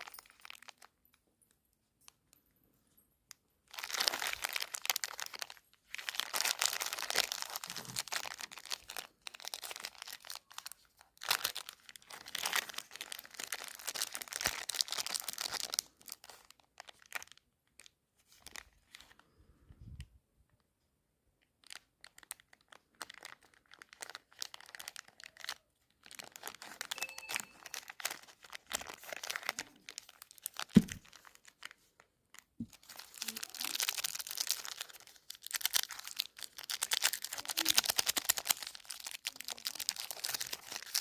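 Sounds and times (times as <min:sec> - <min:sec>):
plastic wrappers crinkling: 0:00.0 - 0:01.0, 0:03.3 - 0:19.5, 0:21.4 - 0:41.0.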